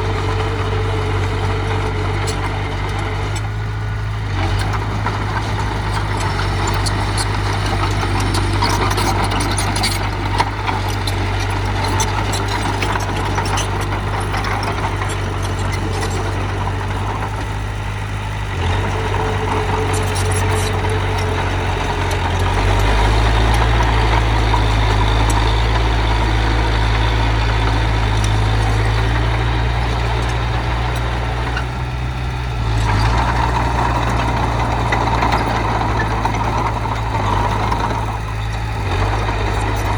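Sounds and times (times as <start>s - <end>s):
diesel engine running: 0.0s - 39.9s
clicks and clanks: 4.3s - 17.5s, 18.7s - 31.7s.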